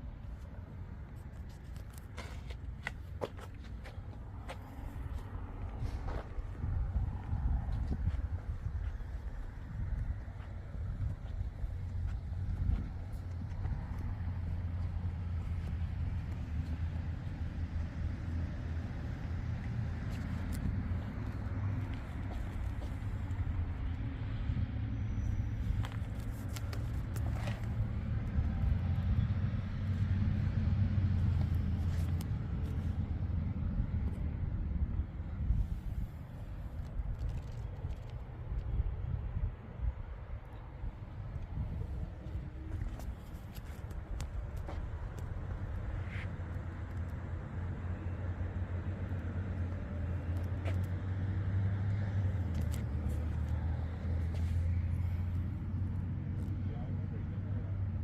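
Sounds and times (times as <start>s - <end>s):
engine running low hum: 0.0s - 58.0s
engine idling with low rumble: 51.9s - 58.0s.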